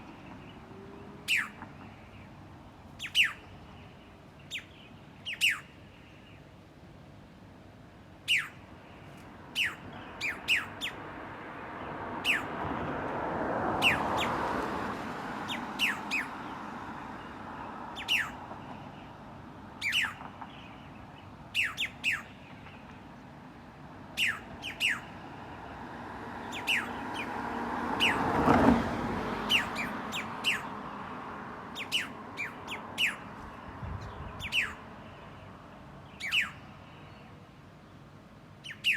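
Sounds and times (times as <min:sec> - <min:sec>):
birds chirping sharply: 0:03.0 - 0:06.1, 0:08.3 - 0:11.1, 0:15.5 - 0:19.2, 0:19.8 - 0:22.9, 0:24.2 - 0:25.2, 0:26.4 - 0:37.3, 0:38.6 - 0:38.9.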